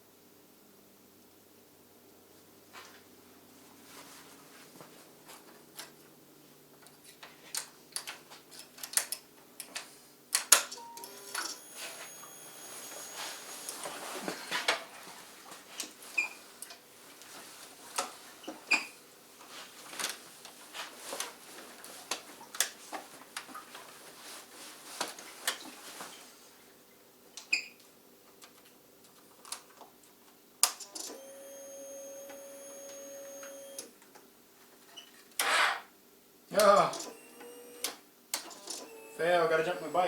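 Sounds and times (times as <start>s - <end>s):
steady electrical buzz: 11.0s - 14.6s.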